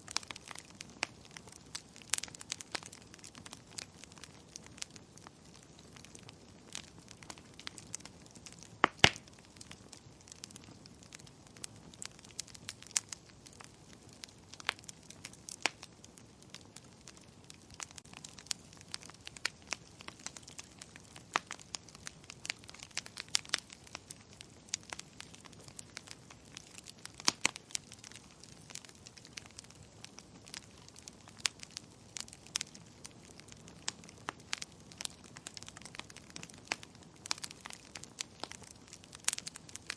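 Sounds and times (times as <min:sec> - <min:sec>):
faint fire hiss: 0:00.0 - 0:39.9
wood fire crackling and popping: 0:00.0 - 0:39.9.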